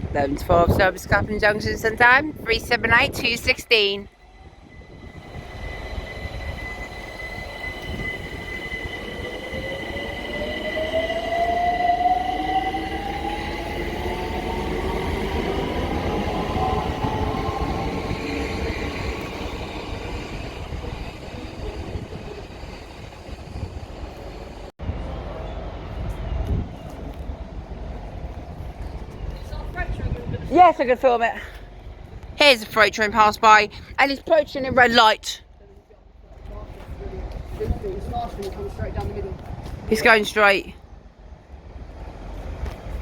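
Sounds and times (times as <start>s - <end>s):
steady high whistle: 3.8s - 24.3s
electric train motors whining: 4.1s - 24.7s.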